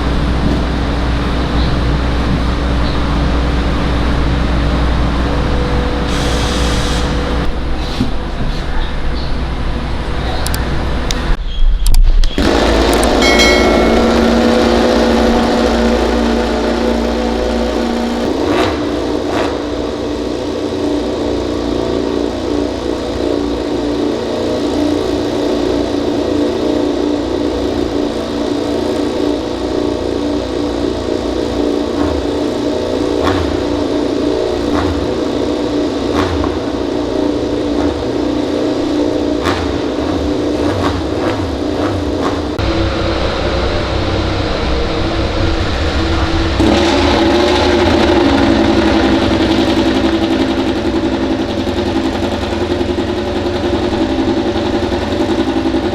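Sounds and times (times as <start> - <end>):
racing motorcycle engine: 0.0 - 11.4, 12.2 - 55.9.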